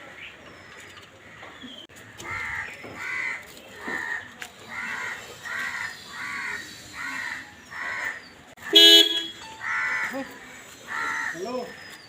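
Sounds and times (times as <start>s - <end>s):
crow cawing: 2.2s - 8.8s, 9.6s - 11.8s
car horn toot: 8.6s - 9.5s.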